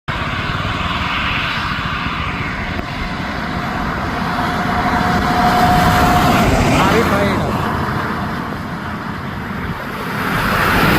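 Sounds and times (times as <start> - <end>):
bus engine and tyre rumble: 0.1 - 10.9
steady high tone: 2.6 - 9.7.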